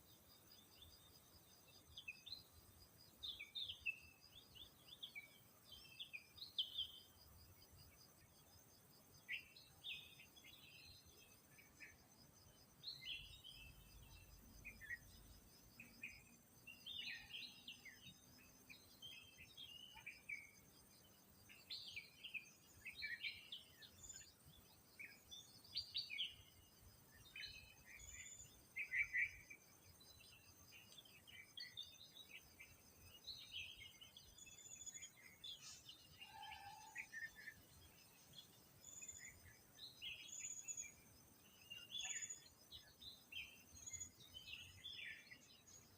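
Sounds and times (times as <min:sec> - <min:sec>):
birds chirping and twittering: 0:00.0 - 0:45.9.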